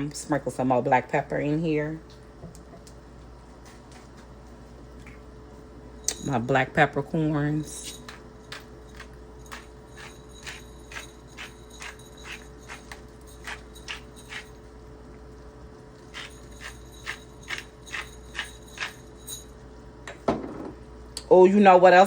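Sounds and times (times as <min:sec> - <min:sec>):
pepper grinder clicking: 0:08.0 - 0:14.4, 0:16.1 - 0:18.9.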